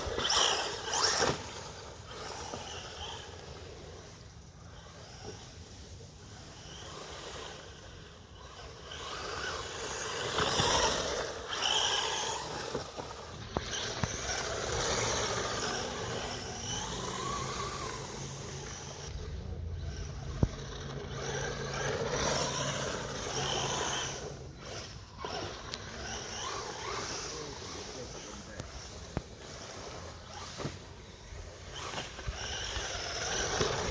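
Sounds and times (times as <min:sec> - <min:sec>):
rc car electric motor whine: 0:00.0 - 0:33.9
tyres on dirt: 0:00.0 - 0:33.9.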